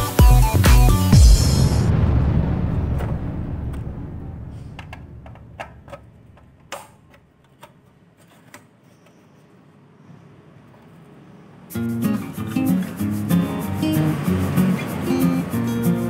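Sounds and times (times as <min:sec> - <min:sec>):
low rumble: 0:01.1 - 0:06.6.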